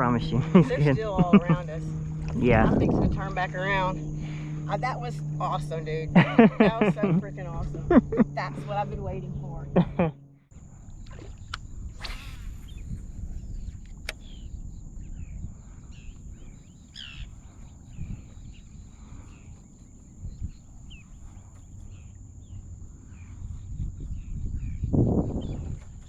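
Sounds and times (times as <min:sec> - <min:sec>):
birds chirping: 0:00.0 - 0:26.0
steady low rumble: 0:00.0 - 0:26.0
thin high-pitched whine: 0:10.8 - 0:15.2.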